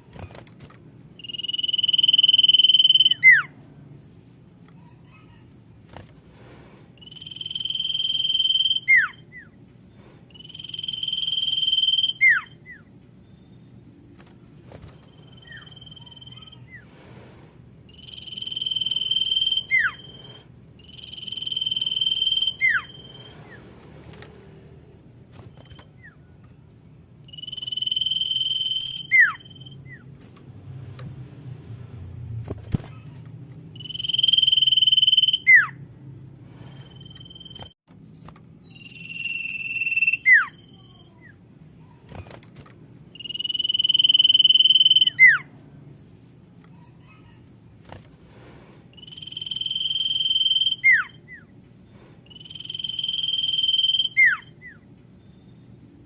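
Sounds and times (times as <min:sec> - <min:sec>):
bird whistling call: 0:01.2 - 0:03.5, 0:07.0 - 0:09.5, 0:10.4 - 0:12.9, 0:17.9 - 0:23.6, 0:27.3 - 0:30.0, 0:33.8 - 0:35.8, 0:38.6 - 0:41.0, 0:43.2 - 0:45.5, 0:49.0 - 0:51.5, 0:52.3 - 0:54.8.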